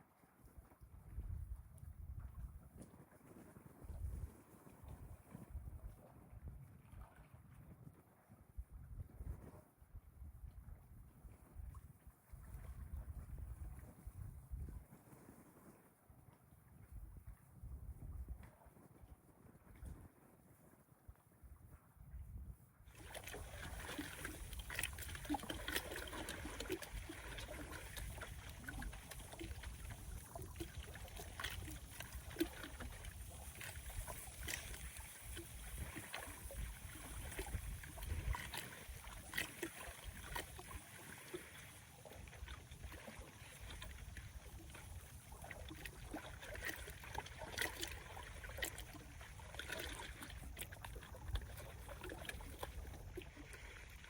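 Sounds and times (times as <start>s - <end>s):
wind rumble on microphone: 0.0s - 54.0s
waves lapping against shore: 22.9s - 54.0s.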